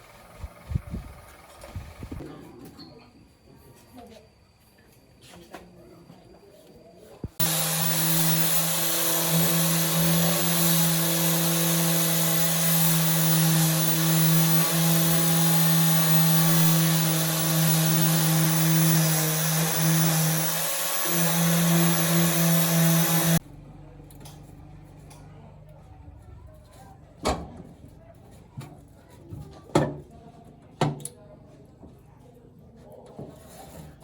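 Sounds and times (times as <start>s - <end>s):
electric power tool running: 7.4s - 23.4s.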